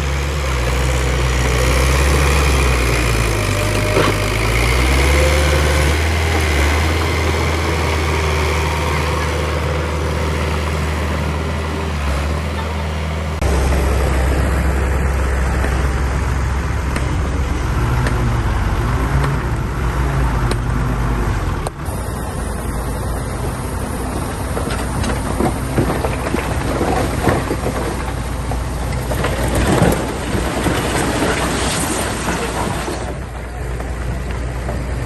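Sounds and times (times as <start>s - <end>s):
bulldozer engine droning: 0.0s - 35.0s.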